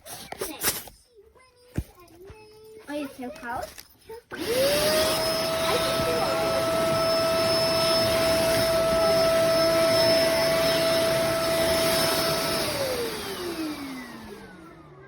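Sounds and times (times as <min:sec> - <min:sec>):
upright vacuum running: 0:04.3 - 0:15.0
vacuum motor winding down: 0:04.3 - 0:15.0.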